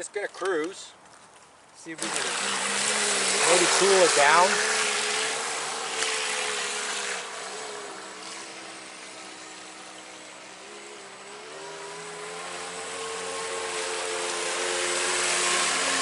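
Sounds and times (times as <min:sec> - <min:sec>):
water spray hiss: 0:02.0 - 0:10.7
electric motor whining: 0:02.0 - 0:16.0.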